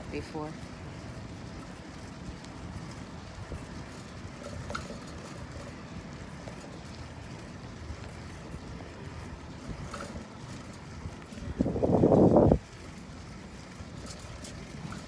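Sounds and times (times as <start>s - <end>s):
bicycle rolling on pavement: 0.0s - 15.0s
wind on microphone: 11.0s - 12.7s.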